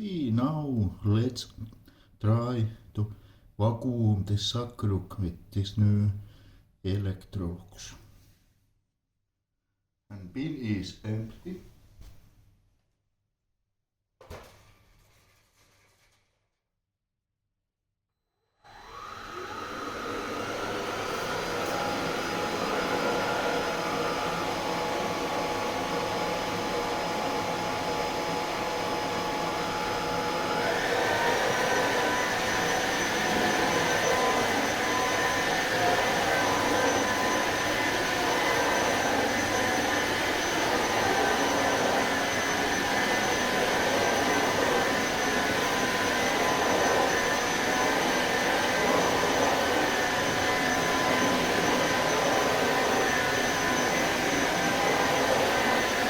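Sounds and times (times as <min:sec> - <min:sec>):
vacuum cleaner motor whine: 0:18.5 - 0:56.0.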